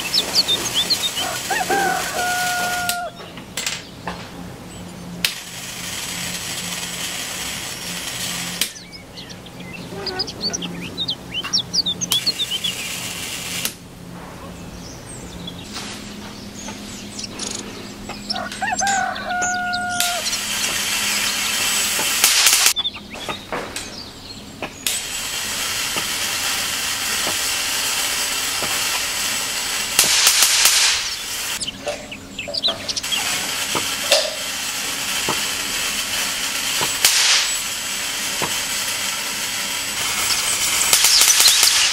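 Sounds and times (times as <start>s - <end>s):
high-voltage discharge hiss: 0.0s - 3.9s, 5.0s - 13.9s, 15.6s - 23.0s, 24.6s - 41.9s
low hum: 0.0s - 25.7s.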